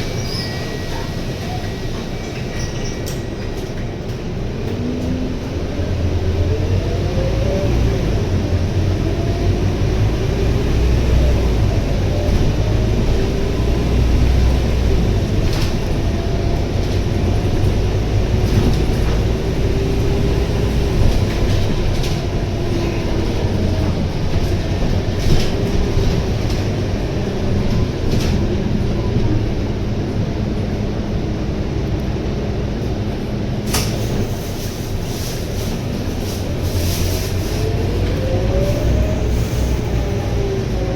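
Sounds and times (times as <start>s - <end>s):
bus engine low rumble: 0.0s - 40.9s.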